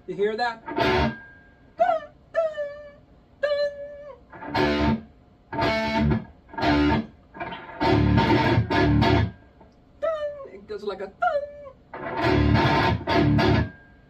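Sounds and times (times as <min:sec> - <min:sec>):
distorted electric guitar: 0:00.6 - 0:01.2, 0:04.3 - 0:09.5, 0:11.9 - 0:13.8.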